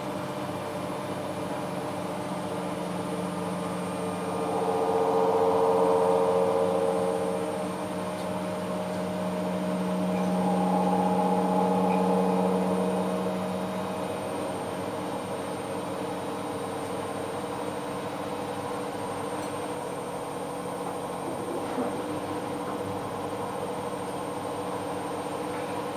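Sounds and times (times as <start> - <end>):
washing machine motor hum: 1.3 - 21.4.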